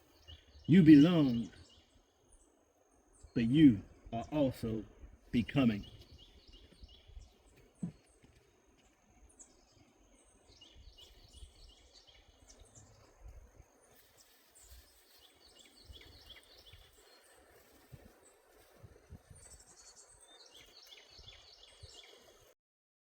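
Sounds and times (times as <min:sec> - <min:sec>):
small birds chirping: 0:00.0 - 0:22.6.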